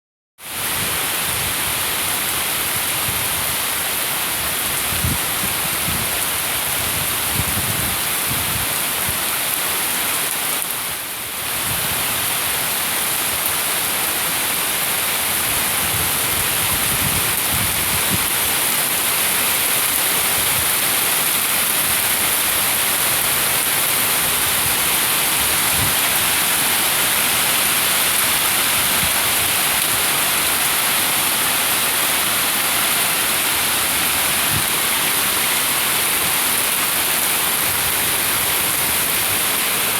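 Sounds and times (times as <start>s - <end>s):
water rushing: 0.4s - 39.9s.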